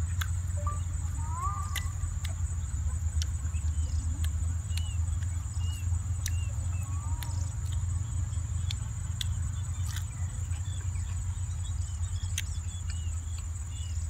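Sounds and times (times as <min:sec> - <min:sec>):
high insect drone: 0:00.0 - 0:14.0
man chewing raw vegetables: 0:00.0 - 0:14.0
short chirps: 0:00.5 - 0:02.0.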